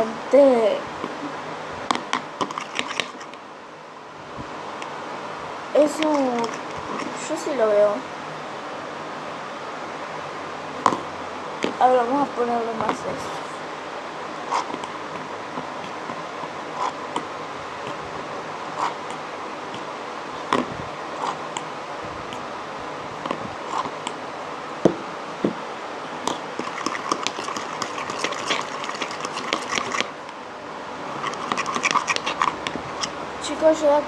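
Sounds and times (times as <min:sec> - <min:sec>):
steady background hiss: 0:00.0 - 0:34.0
slime being stirred crackling: 0:01.9 - 0:03.4, 0:05.8 - 0:07.5, 0:14.5 - 0:18.0, 0:18.6 - 0:21.7, 0:26.2 - 0:30.3, 0:31.1 - 0:33.8.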